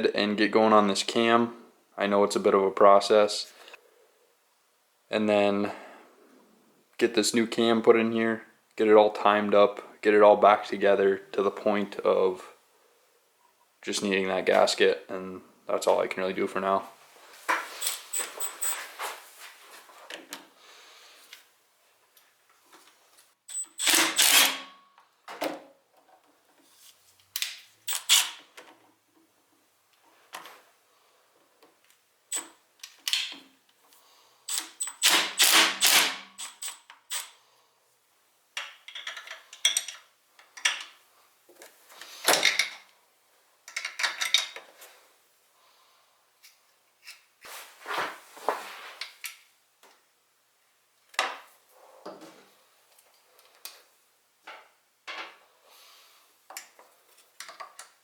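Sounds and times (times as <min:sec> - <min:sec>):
hand tools and metal parts clinking: 0:17.7 - 0:19.0, 0:38.6 - 0:41.0, 0:43.7 - 0:44.7.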